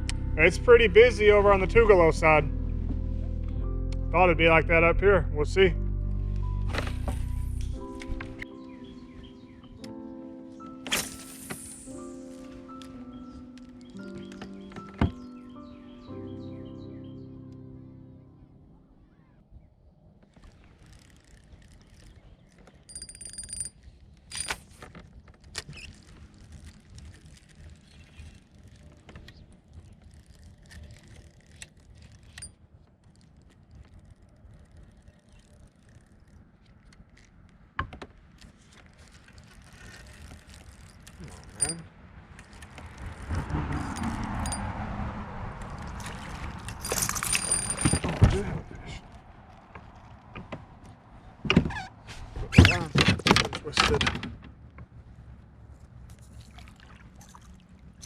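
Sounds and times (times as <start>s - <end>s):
fishing reel ratcheting: 20.8s - 22.2s, 29.9s - 36.4s.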